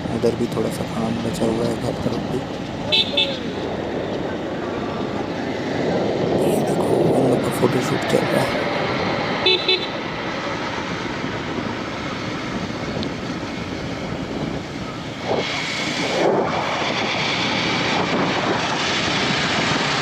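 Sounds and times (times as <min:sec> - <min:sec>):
road noise: 0:00.0 - 0:20.0
wind on microphone: 0:00.0 - 0:20.0
motorcycle engine: 0:08.7 - 0:20.0.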